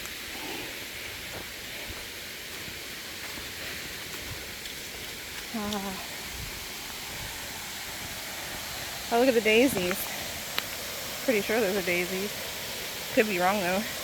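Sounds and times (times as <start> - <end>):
person humming: 5.5 - 6.1.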